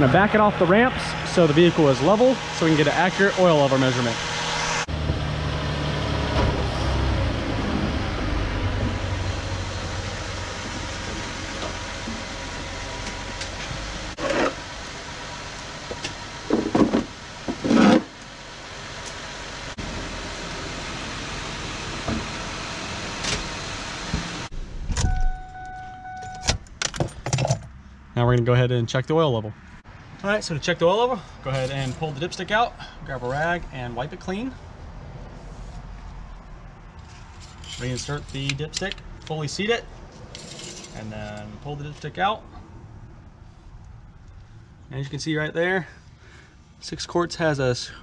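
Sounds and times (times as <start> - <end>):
car engine running: 0.0 - 24.6
electronic warning tone: 25.1 - 26.5.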